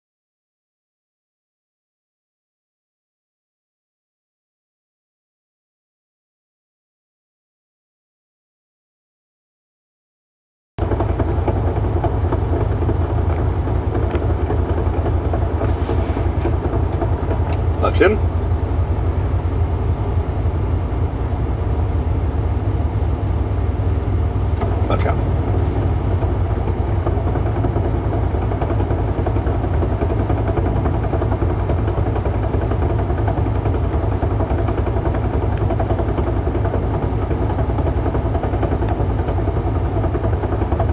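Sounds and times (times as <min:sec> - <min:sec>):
car engine idling: 0:10.8 - 0:40.9.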